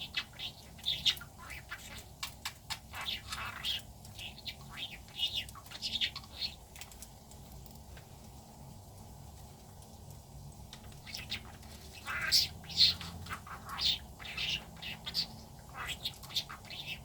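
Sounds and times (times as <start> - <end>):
budgerigar chirping and warbling: 0.0 - 6.6, 11.0 - 17.0.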